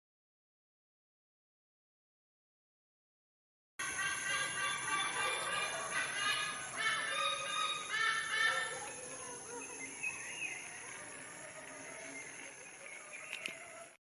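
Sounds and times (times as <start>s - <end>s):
constant high whine: 3.8s - 14.0s.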